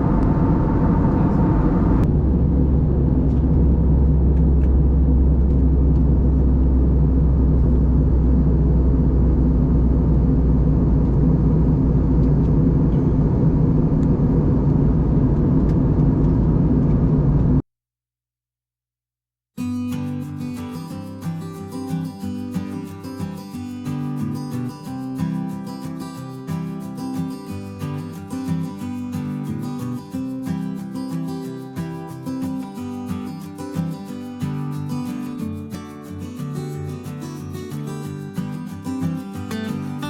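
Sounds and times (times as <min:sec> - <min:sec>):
constant low hum: 0:00.0 - 0:17.6
jet airliner cabin rumble: 0:00.0 - 0:17.6.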